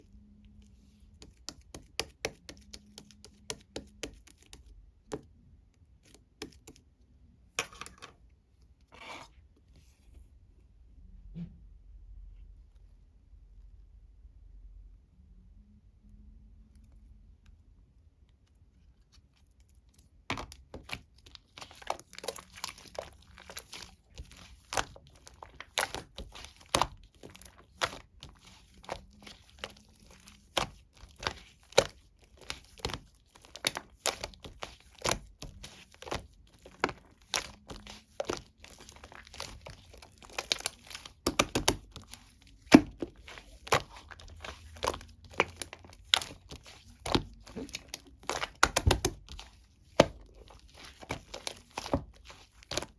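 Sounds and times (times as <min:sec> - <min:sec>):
slime squeezed with sticky pops: 0:20.3 - 0:52.9.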